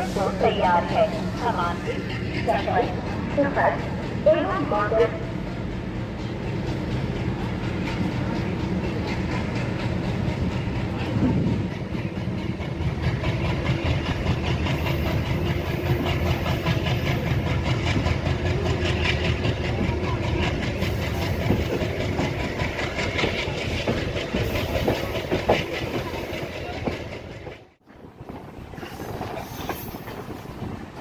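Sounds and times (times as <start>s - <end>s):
train wheels clattering: 0.0s - 31.0s.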